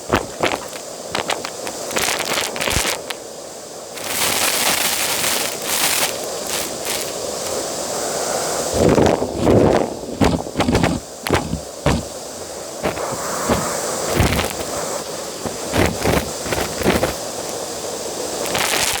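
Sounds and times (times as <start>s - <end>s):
debris clattering in vacuum: 8.8s - 17.2s.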